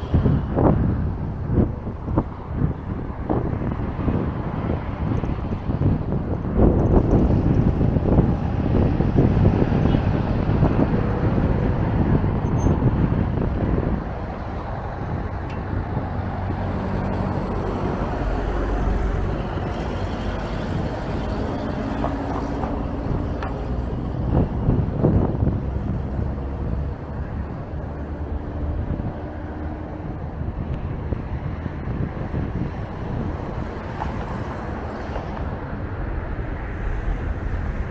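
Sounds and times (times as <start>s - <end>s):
street traffic: 0.0s - 37.9s
wind buffeting microphone: 0.0s - 37.9s
vehicle engine running: 5.0s - 34.9s.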